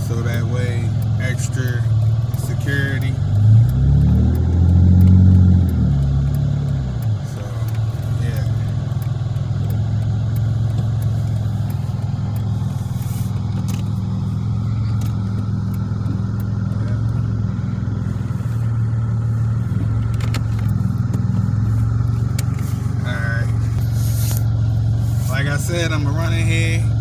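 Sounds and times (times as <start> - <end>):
car engine running at low revs: 0.0 - 27.0
faint ticks: 0.0 - 27.0.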